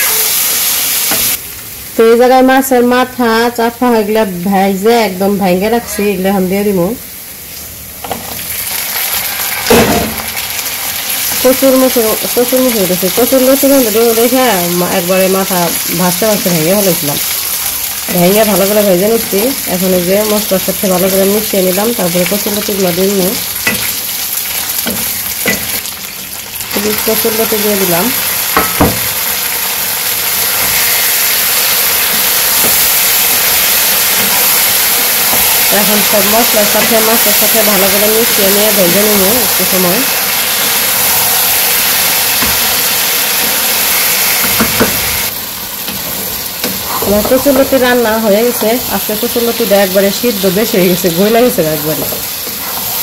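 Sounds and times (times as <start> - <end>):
fish sizzling in hot oil: 0.0 - 1.5, 7.1 - 53.0
sharp knocks: 28.6 - 29.2.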